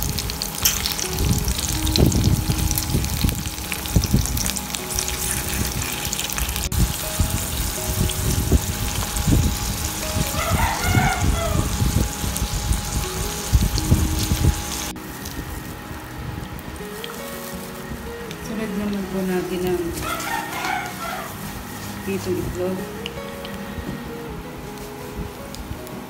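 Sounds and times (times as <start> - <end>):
okra sizzling in hot oil: 0.0 - 23.5
background music: 0.0 - 26.0
tongs turning food: 3.6 - 6.7.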